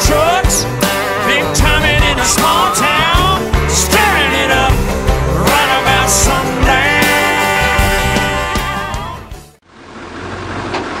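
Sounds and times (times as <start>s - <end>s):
music: 0.0s - 9.6s
diesel truck exhaust running: 0.0s - 11.0s.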